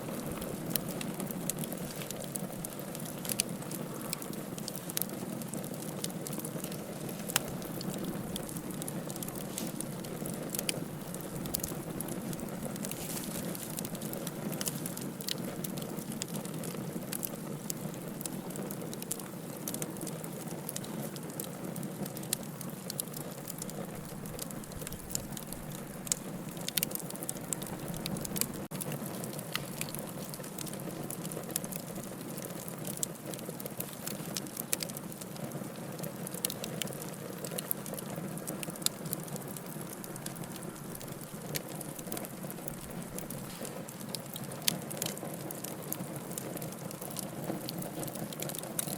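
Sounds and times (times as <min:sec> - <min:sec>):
soft rush of flames: 0:00.0 - 0:21.6, 0:36.5 - 0:48.9
log fire crackling: 0:00.0 - 0:48.9
pops and snaps of fire: 0:00.0 - 0:48.9.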